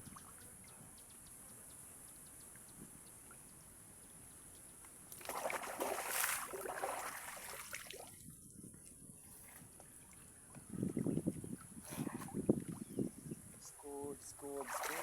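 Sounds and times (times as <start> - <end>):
water splashing from swimming: 5.2 - 8.2, 14.4 - 15.0.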